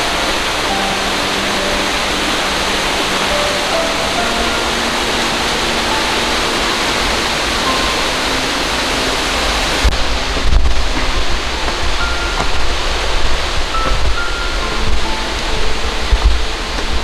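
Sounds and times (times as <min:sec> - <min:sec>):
waterfall pouring: 0:00.0 - 0:17.0.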